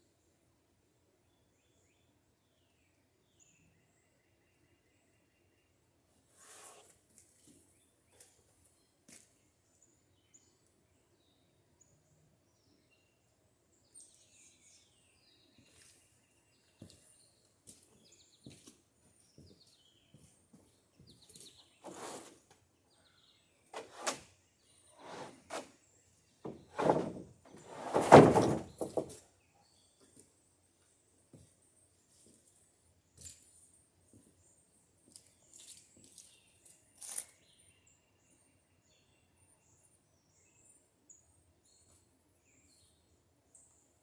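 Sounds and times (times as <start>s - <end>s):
wooden boards knocking and scraping: 23.8s - 24.2s, 25.0s - 25.7s, 26.5s - 29.2s.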